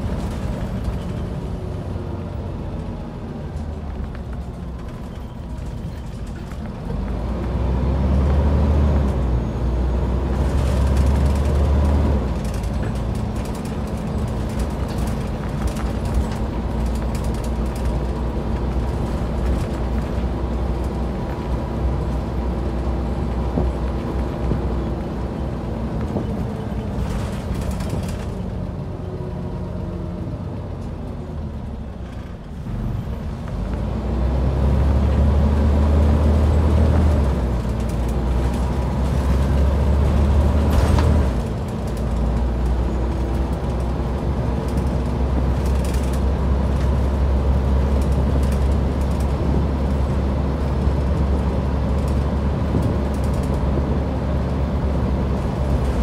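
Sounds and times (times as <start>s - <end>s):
bus diesel engine: 0.0s - 56.0s
bus body knocks and rattles: 10.3s - 28.7s, 36.3s - 56.0s.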